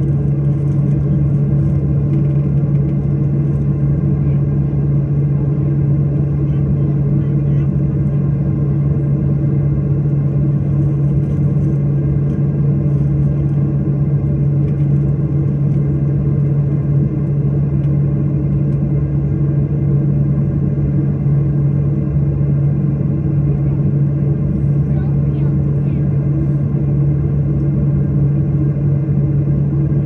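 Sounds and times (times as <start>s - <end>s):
airliner engines droning in cabin: 0.0s - 30.0s.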